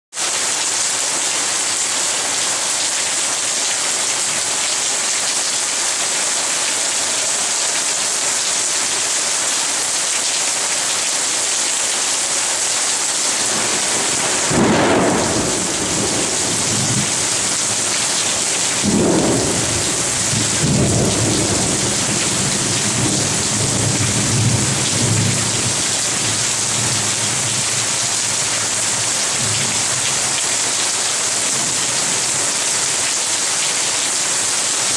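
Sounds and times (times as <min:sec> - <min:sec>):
heavy rain hissing: 0:00.2 - 0:34.9
thunder rumbling: 0:13.4 - 0:27.7.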